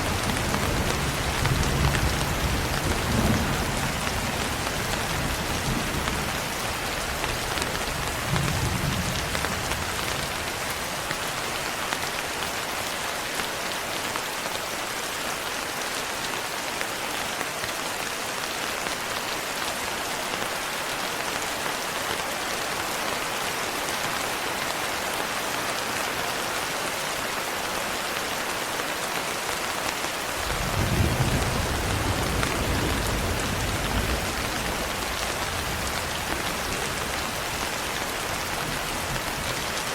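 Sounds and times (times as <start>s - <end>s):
thunder rumbling: 30.4s - 39.6s.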